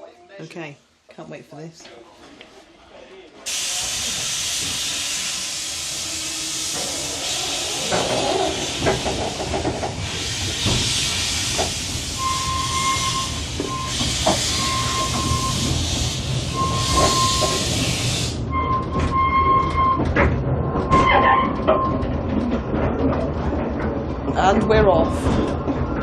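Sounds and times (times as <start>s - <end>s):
steam locomotive hissing steam: 3.5s - 18.5s.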